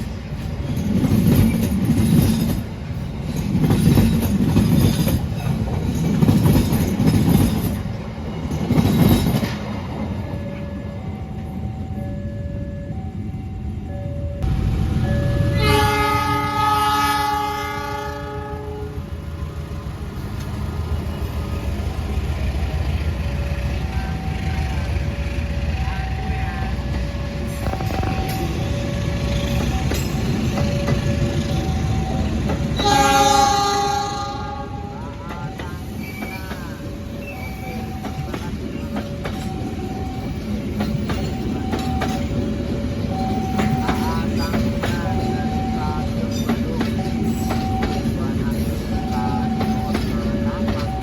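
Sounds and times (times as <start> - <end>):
wheels clacking on rail joints: 0.0 - 10.6, 26.2 - 33.2, 35.2 - 51.0
passing train rumble: 0.0 - 51.0
train horn blast: 15.3 - 19.0, 32.8 - 35.0.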